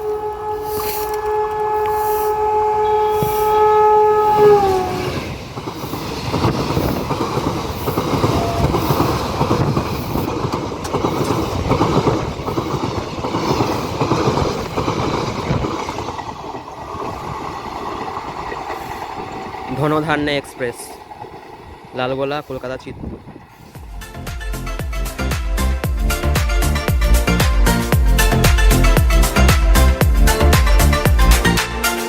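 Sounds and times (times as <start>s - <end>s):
train horn: 0.0s - 5.4s, 26.6s - 32.0s
train wheels clacking over rails: 4.4s - 24.0s.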